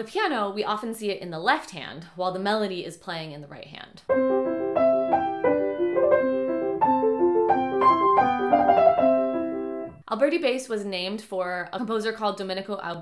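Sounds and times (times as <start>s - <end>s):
classical piano piece: 4.1s - 10.0s.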